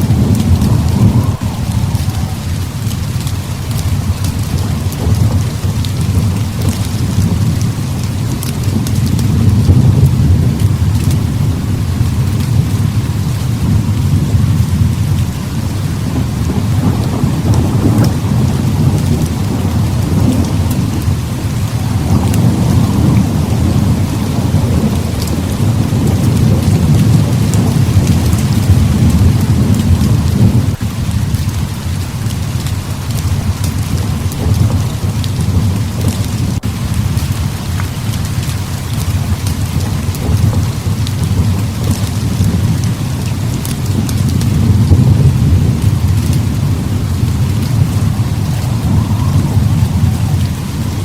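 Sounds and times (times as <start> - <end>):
heavy rain pouring: 0.0 - 51.0
rolling thunder rumbling: 0.0 - 51.0.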